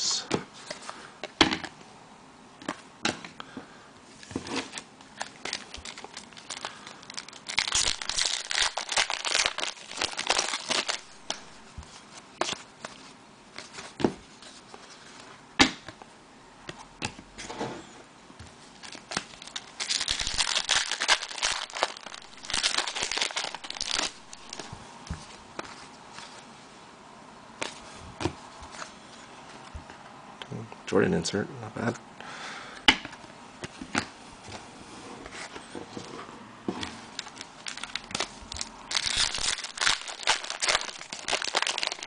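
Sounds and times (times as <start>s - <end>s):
wrapper crinkling and tearing: 4.5s - 11.7s, 18.8s - 24.8s, 37.0s - 42.0s.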